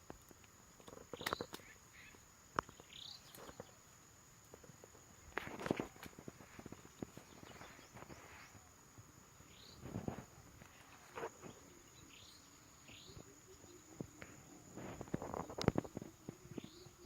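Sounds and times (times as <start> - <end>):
insect drone: 0.0 - 17.0
soft rustles: 4.5 - 8.7, 9.8 - 11.8, 13.9 - 16.9.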